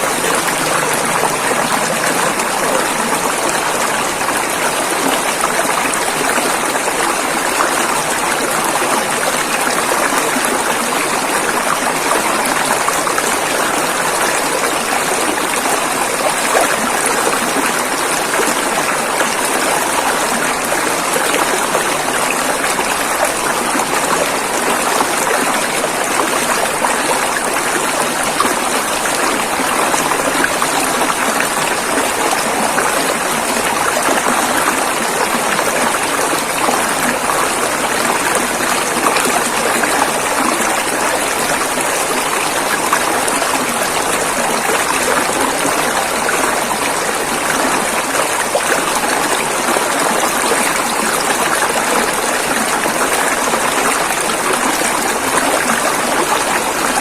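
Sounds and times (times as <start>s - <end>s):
river flowing over rocks: 0.0s - 57.0s.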